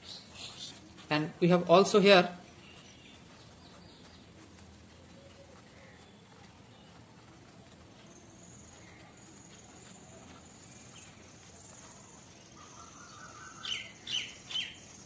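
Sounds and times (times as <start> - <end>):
faint background hiss: 0.0 - 15.0
small bird chirps: 8.0 - 15.0.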